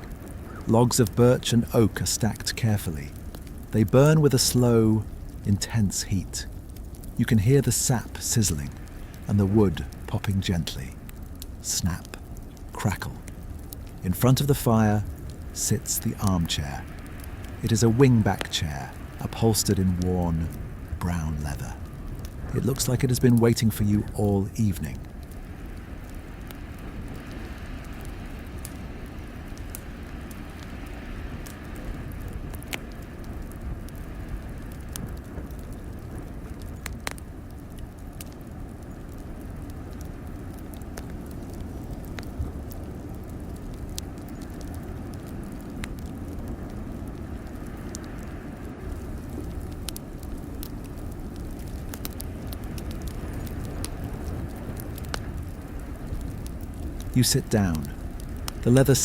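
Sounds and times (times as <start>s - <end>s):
crackling wood fire: 0.0s - 59.0s
fire popping and snapping: 0.0s - 59.0s.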